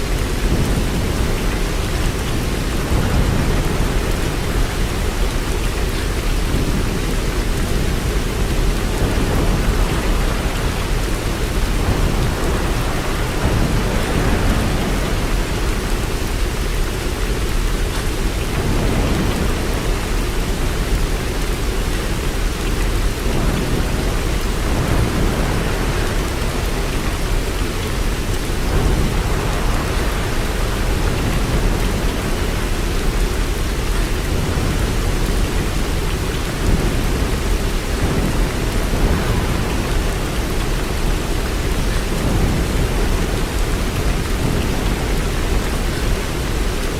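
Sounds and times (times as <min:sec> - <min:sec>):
steady rain: 0:00.0 - 0:46.9.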